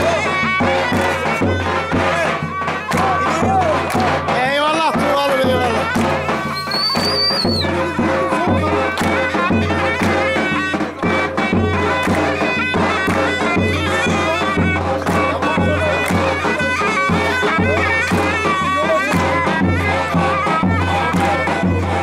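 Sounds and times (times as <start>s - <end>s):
bass drum beat: 0.0s - 13.8s
shrill reed-pipe melody: 0.0s - 22.0s
high whistle: 6.4s - 7.7s.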